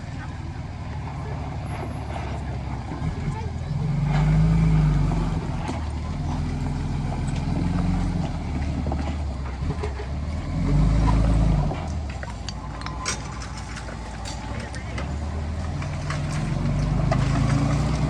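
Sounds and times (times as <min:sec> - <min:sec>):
heavy diesel engine running: 0:00.0 - 0:18.0.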